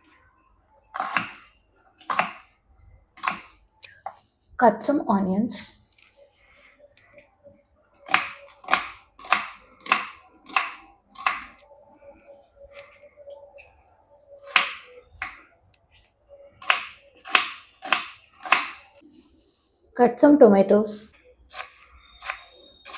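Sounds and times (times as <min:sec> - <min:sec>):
knife cutting onions on board: 0:02.0 - 0:02.5, 0:03.2 - 0:03.5, 0:08.0 - 0:11.6, 0:16.6 - 0:18.8.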